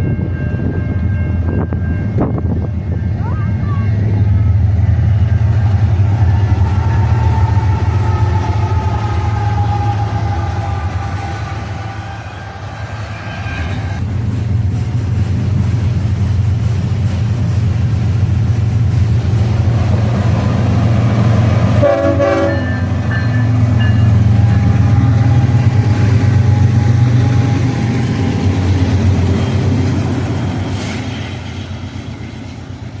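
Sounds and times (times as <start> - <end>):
diesel locomotive engine rumble: 0.0 - 33.0
train horn blast: 3.6 - 13.9, 21.6 - 27.6.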